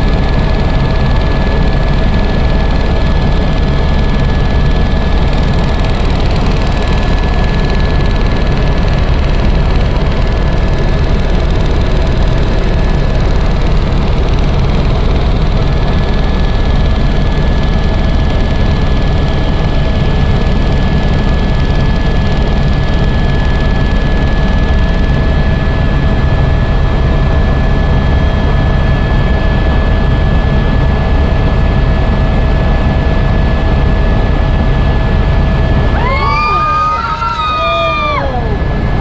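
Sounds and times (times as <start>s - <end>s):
helicopter engine and rotor rumble: 0.0s - 39.0s
thin steady whine: 35.2s - 39.0s.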